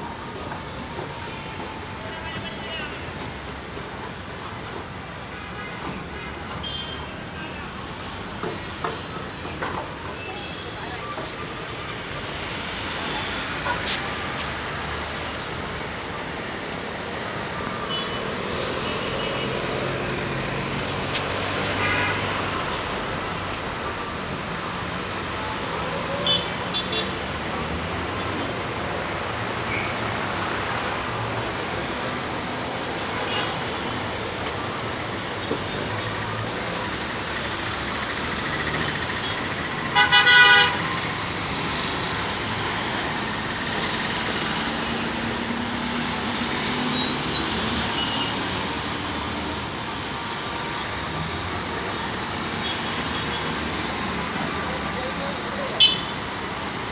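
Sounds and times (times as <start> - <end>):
street traffic noise: 0.0 - 56.9
vehicle horn: 39.9 - 40.9, 55.8 - 56.2.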